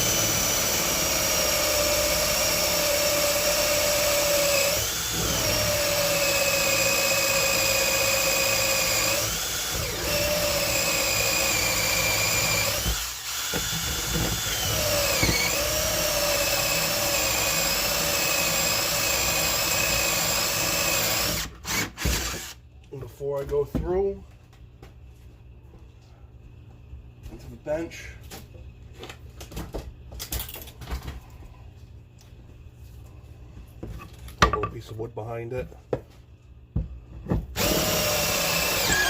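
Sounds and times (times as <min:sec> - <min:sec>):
electric drill boring into wood: 0:00.0 - 0:22.6, 0:37.6 - 0:39.0.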